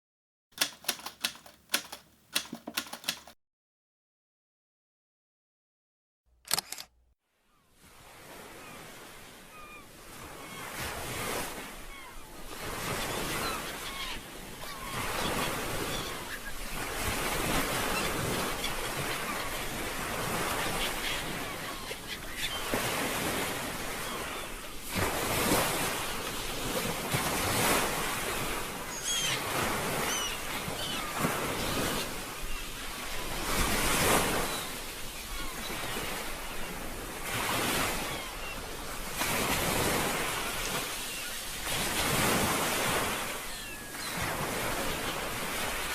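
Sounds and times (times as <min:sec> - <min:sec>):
sea waves washing on shore: 0:22.6 - 0:45.9.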